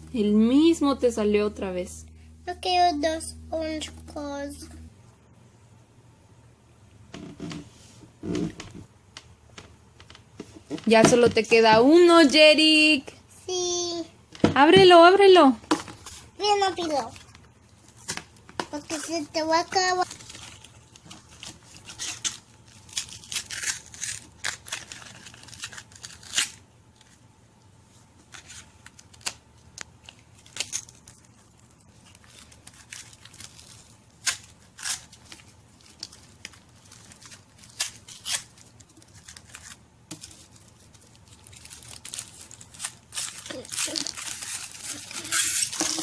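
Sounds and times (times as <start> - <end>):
foil wrapper tearing and crinkling: 19.8 - 27.2, 28.3 - 46.0.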